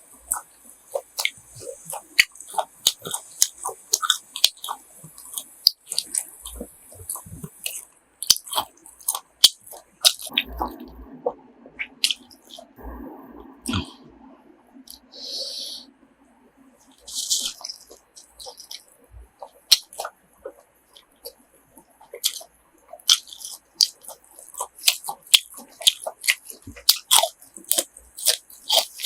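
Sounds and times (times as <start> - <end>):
chewing crunchy food: 0.0 - 13.9, 16.8 - 29.0
steady low sound: 10.3 - 17.7.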